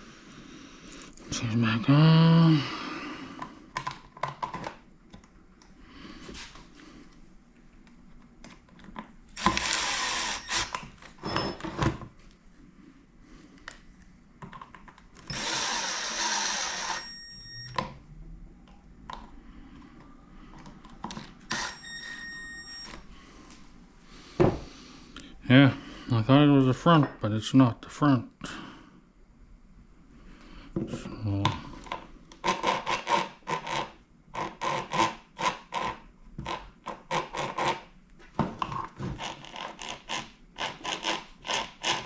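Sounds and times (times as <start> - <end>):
power tool running: 9.4 - 10.8, 15.3 - 17.2, 21.5 - 21.8.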